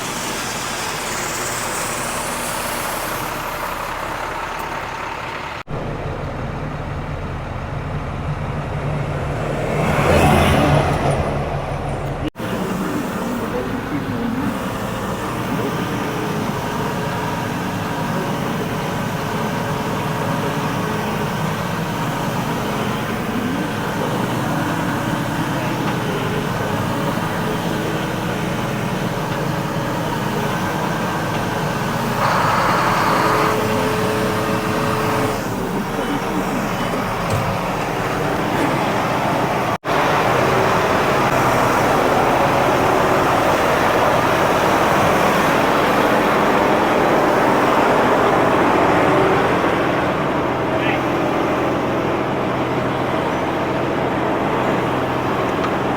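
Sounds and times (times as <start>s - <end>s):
machinery humming: 0.0s - 55.9s.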